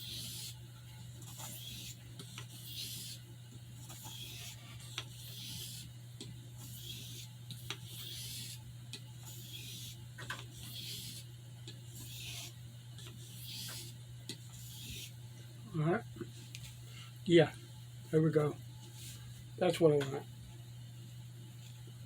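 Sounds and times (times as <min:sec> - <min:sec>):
blade scraping on whetstone: 0:00.0 - 0:00.6, 0:01.2 - 0:03.2, 0:03.8 - 0:05.9, 0:06.6 - 0:08.6, 0:09.2 - 0:10.0, 0:10.6 - 0:11.3, 0:11.9 - 0:15.1.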